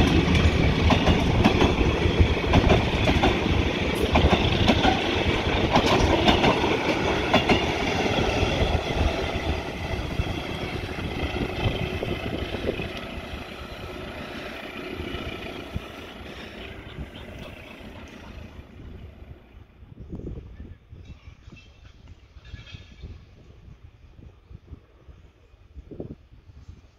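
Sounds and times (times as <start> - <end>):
train wheels clicking over rail joints: 0.0 - 16.7.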